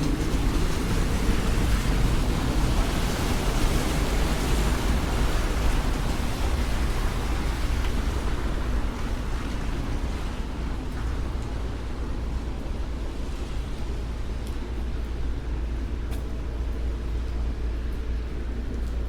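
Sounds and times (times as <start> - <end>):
city street noise rumble: 0.0 - 19.0.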